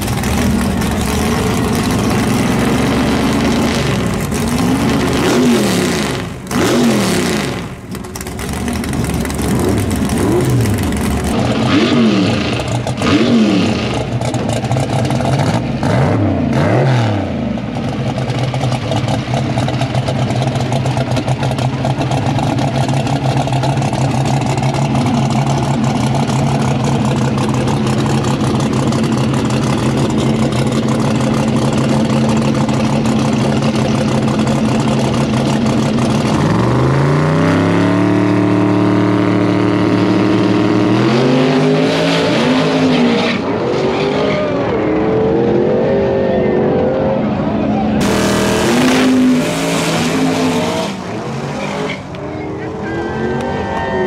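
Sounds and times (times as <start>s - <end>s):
drag car engine revving: 0.0s - 54.0s.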